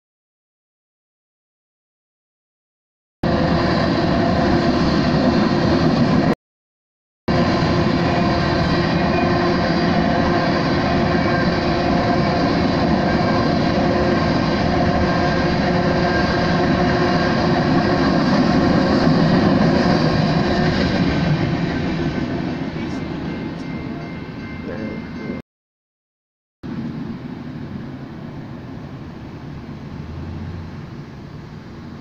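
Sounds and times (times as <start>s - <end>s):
freight train wheels rumbling on rail: 3.2s - 6.4s, 7.3s - 25.4s.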